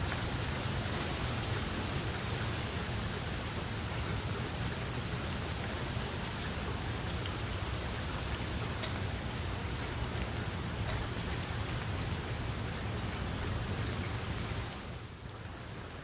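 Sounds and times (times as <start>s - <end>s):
steady rain hiss: 0.0s - 16.0s
raindrops ticking: 5.4s - 14.2s.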